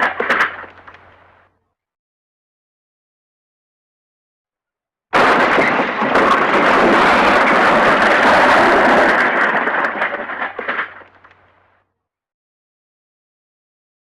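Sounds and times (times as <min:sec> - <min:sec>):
smashing and clattering debris: 0:00.0 - 0:01.2, 0:05.2 - 0:11.6.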